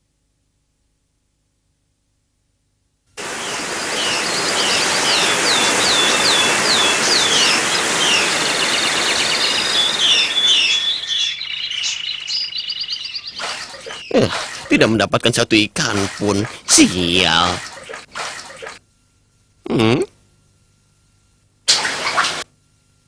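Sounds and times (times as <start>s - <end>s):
steady rushing noise: 3.2s - 11.0s
small birds chirping: 3.2s - 15.0s.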